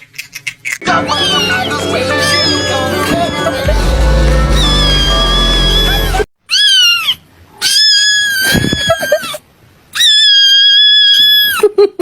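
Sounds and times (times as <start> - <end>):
high-pitched animal squeals: 0.9 - 3.2, 4.4 - 11.6.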